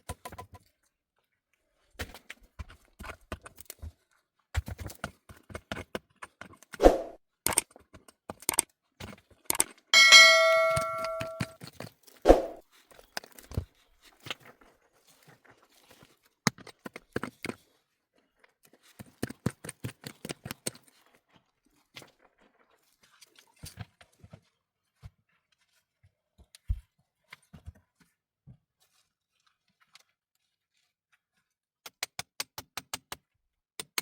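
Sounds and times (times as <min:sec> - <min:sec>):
ringing metallic clang: 0:10.0 - 0:11.5.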